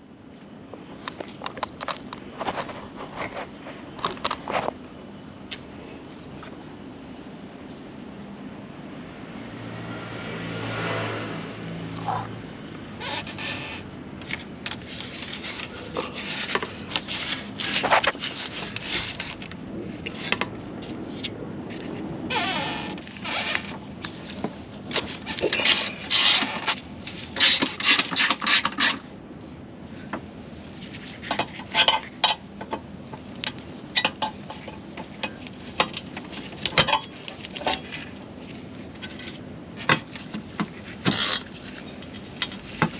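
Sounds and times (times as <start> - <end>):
hand tools clinking and scraping: 13.0 - 19.5, 22.3 - 29.0, 30.8 - 32.8, 33.9 - 38.1.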